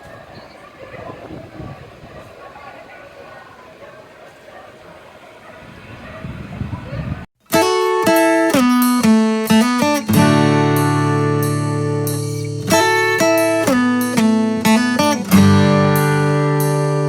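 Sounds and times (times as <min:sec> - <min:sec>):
acoustic guitar music: 0:07.4 - 0:17.0.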